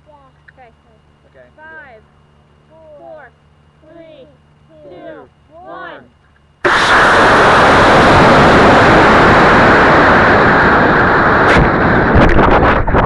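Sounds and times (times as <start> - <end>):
rocket exhaust rush: 4.8 - 13.0
sharp crack: 6.6 - 13.0.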